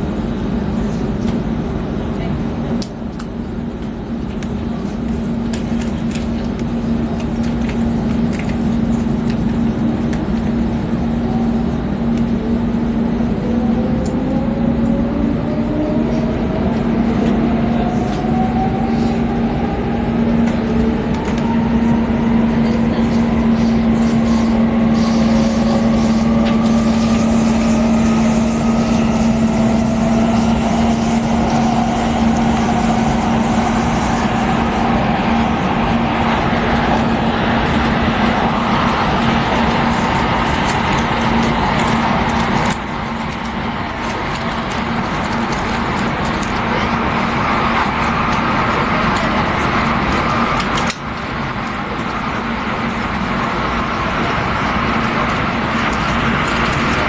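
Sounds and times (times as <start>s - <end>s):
train running noise with hum: 0.0s - 57.0s
traction motor whine rising: 13.3s - 43.2s.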